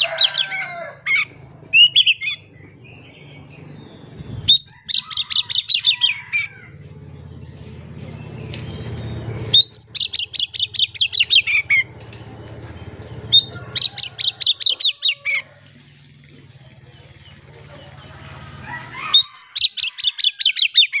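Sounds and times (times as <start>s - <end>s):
bird singing rapid notes: 1.1s - 15.2s.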